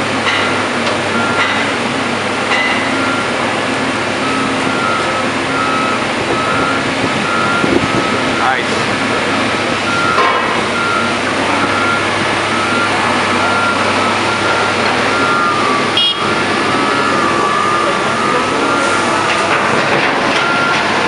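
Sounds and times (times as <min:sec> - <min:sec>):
diesel machinery running: 0:00.0 - 0:21.0
backup alarm beeping: 0:01.2 - 0:01.6, 0:04.2 - 0:08.6, 0:09.8 - 0:19.7, 0:20.3 - 0:21.0.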